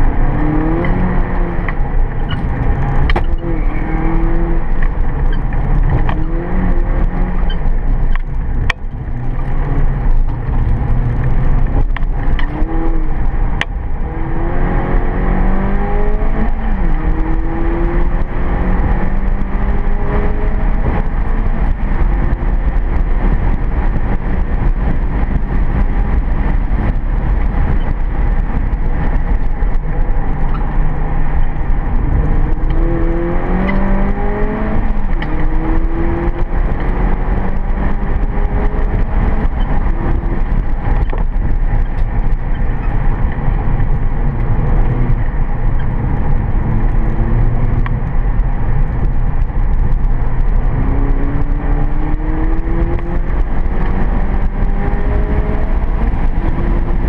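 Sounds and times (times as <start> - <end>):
car engine revving: 0.0 - 57.0
tyre and road noise: 0.0 - 57.0.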